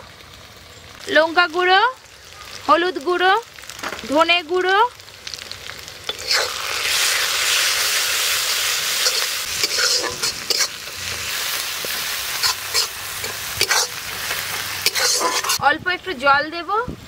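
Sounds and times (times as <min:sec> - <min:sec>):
spices sizzling in hot oil: 0:00.0 - 0:16.6
spatula scraping pan: 0:06.1 - 0:07.6, 0:08.2 - 0:15.6.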